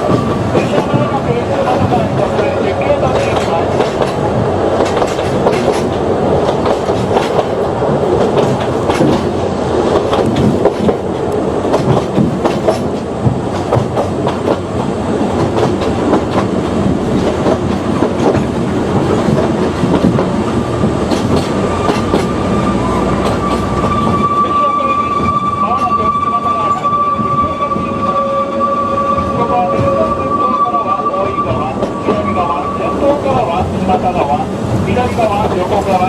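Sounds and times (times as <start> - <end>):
train rumbling along track: 0.0 - 36.0
wheels clicking over rail joints: 3.1 - 14.7, 15.3 - 22.3.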